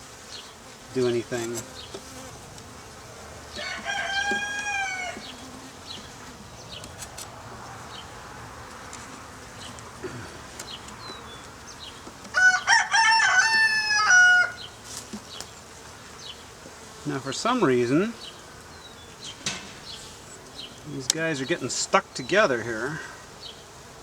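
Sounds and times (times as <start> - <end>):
faint hum of honeybees: 0.0 - 24.0
rooster crowing: 3.2 - 5.5, 12.3 - 14.7.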